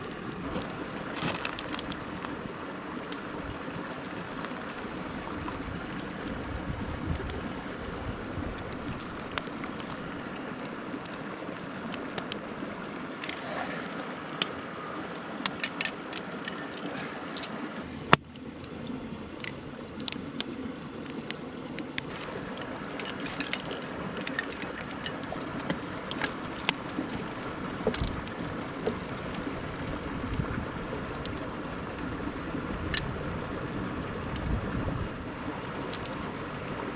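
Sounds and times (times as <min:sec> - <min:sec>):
campfire crackling and popping: 0:00.0 - 0:13.4, 0:14.2 - 0:36.9
stream rushing: 0:00.0 - 0:36.9.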